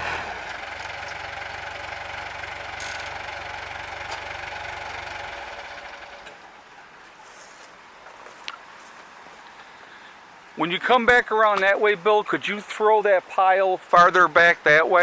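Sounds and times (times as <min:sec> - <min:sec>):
heavy machinery engine running: 0:00.0 - 0:06.4.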